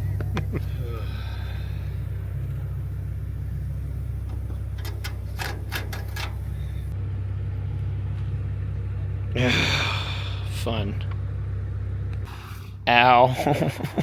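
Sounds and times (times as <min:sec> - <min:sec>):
engine running with low rumble: 0:00.0 - 0:14.0
sharp clicks and clanks: 0:04.2 - 0:07.0.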